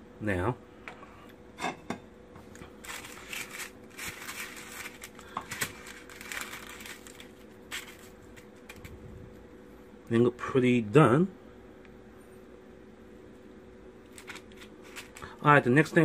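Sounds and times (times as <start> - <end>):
faint steady hum: 0.0 - 16.0
crispy chicken wings crackling: 2.5 - 9.0.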